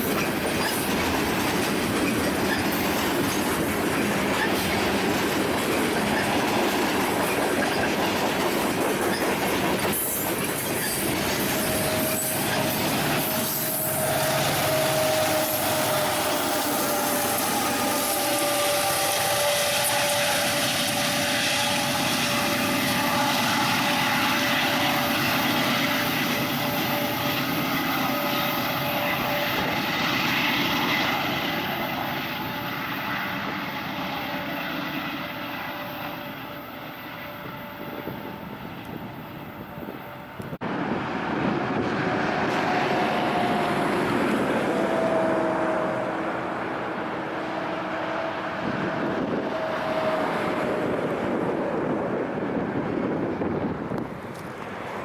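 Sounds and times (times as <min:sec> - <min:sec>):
train wheels clattering on rails: 0:00.0 - 0:37.3, 0:38.0 - 0:45.6
thin wheel squeal: 0:09.8 - 0:25.1.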